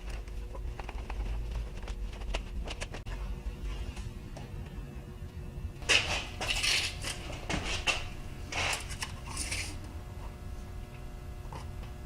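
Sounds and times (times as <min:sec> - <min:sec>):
metal parts clinking and rattling: 0:05.8 - 0:09.8.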